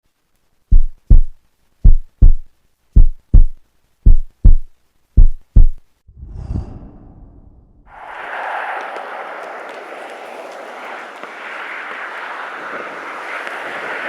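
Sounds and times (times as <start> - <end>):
heartbeat double thumps: 0.7 - 5.8.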